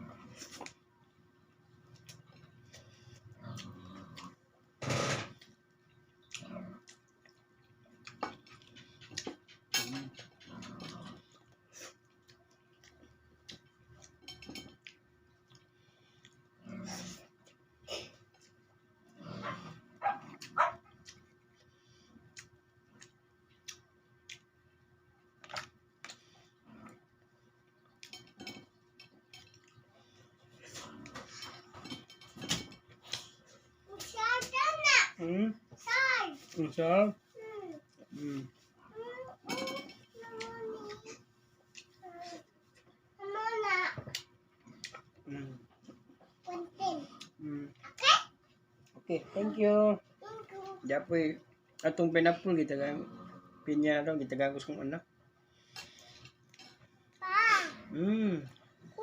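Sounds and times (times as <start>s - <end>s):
chewing and mouth noises: 5.4s - 19.1s, 19.8s - 33.8s, 44.0s - 49.0s.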